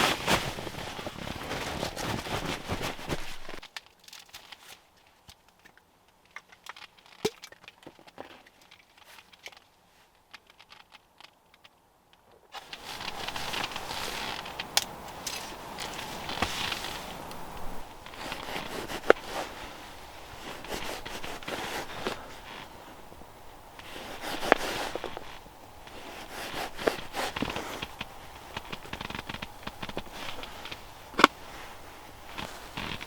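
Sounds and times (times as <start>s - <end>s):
footsteps crunching in snow: 0.0s - 3.7s, 12.6s - 23.1s, 23.8s - 33.0s.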